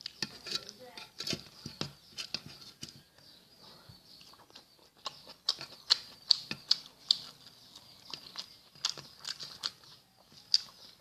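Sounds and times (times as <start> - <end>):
wet chewing clicks: 4.1 - 11.0.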